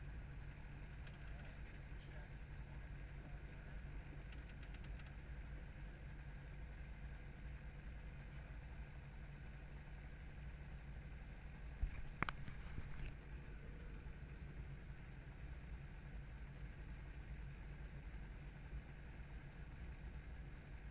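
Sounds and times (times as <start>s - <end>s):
helicopter engine and rotor drone: 0.0s - 20.9s.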